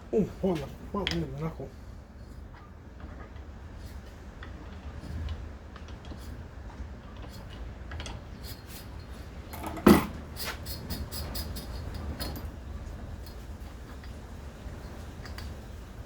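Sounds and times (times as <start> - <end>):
metal tools clinking and clattering: 9.5 - 10.2
loud metal clank: 9.6 - 10.2.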